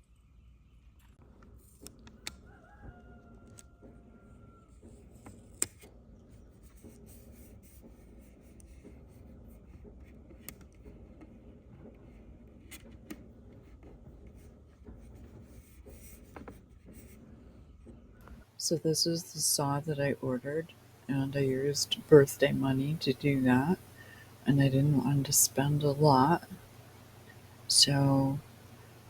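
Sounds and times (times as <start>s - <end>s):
rooster crowing: 2.5s - 4.7s.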